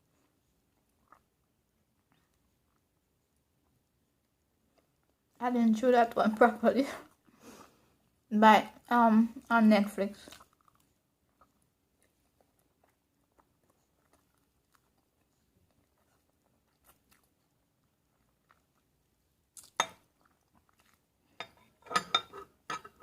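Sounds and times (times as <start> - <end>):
person chewing food: 0.0 - 5.4, 10.2 - 23.0.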